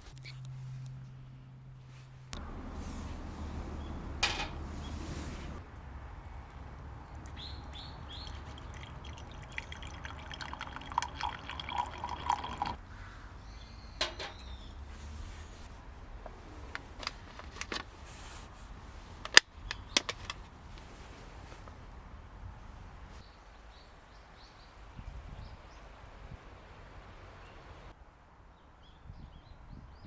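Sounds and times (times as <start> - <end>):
cookware clinking: 2.4 - 5.6, 8.3 - 12.8
liquid pouring: 6.4 - 12.8.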